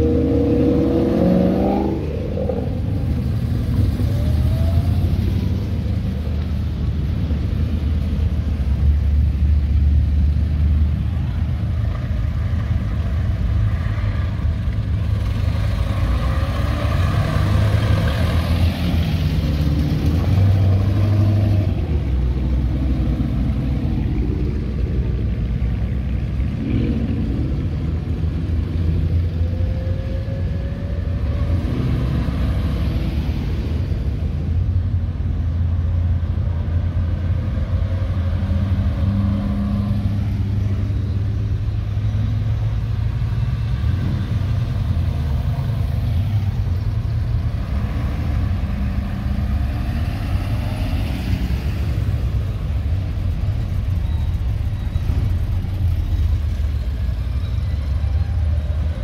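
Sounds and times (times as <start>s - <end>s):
engine revving: 0.0s - 3.1s
car engines rumbling: 0.0s - 59.0s.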